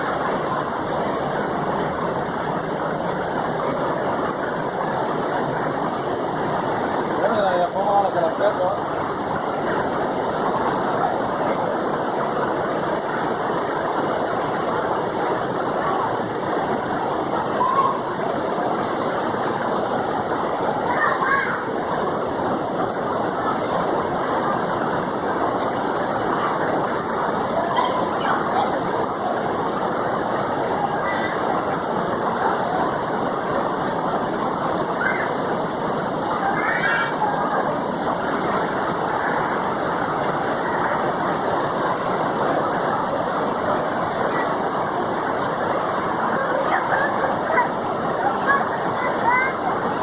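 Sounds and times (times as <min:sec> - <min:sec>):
water rushing over rocks: 0:00.0 - 0:50.0.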